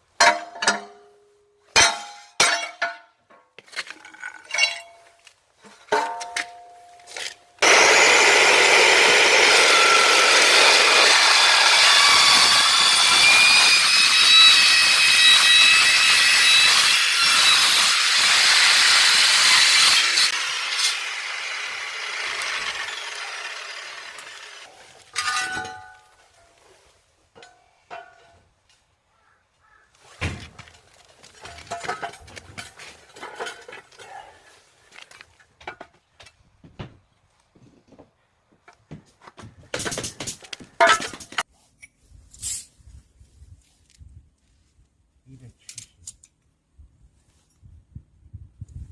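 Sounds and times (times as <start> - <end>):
power tool grinding metal: 7.6 - 24.7
metal pieces clanking: 25.2 - 26.0.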